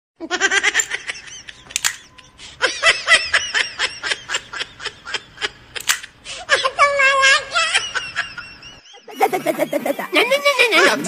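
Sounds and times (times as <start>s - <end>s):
high-pitched laughter: 0.2s - 11.0s
sharp click: 1.7s - 2.2s, 5.8s - 6.1s.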